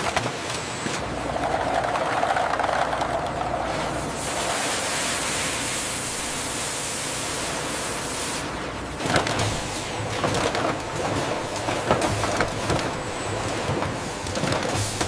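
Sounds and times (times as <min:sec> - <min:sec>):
low machine hum: 0:00.4 - 0:15.0
clatter of knocks and clicks: 0:01.4 - 0:03.6, 0:09.0 - 0:15.0
machinery hiss: 0:03.9 - 0:08.6.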